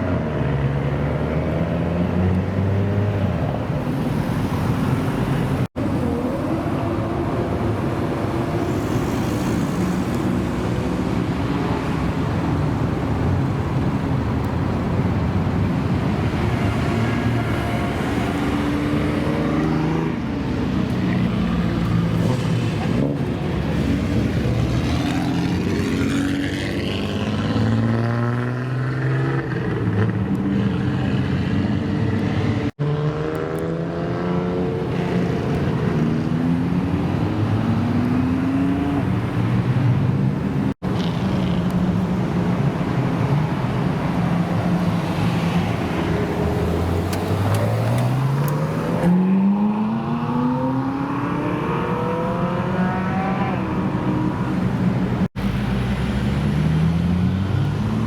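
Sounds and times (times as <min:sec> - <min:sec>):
car engines revving: 0:00.0 - 0:58.0
cars accelerating away: 0:21.1 - 0:40.1, 0:40.9 - 0:58.0.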